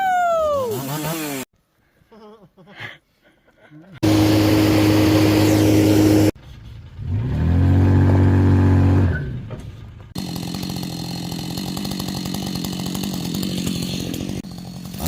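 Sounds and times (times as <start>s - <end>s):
chainsaw running at high revs: 0.6s - 1.5s, 4.0s - 6.4s, 10.2s - 15.0s
motor revving: 4.0s - 6.4s.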